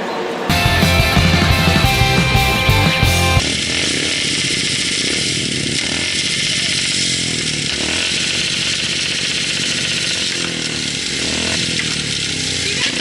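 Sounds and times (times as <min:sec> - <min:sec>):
motorcycle engine running: 0:00.5 - 0:13.0.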